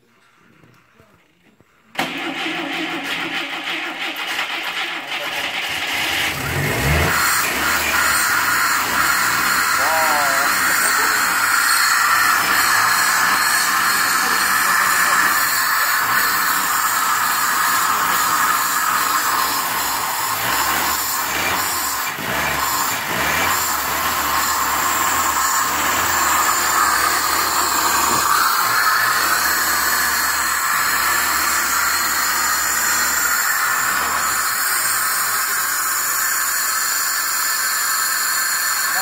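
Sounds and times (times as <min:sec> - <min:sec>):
car engine running: 0:03.3 - 0:39.0.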